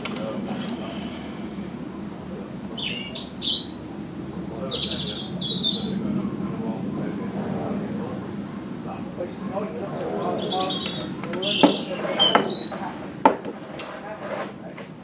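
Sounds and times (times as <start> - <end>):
small bird chirping: 2.4 - 6.0, 10.3 - 12.8.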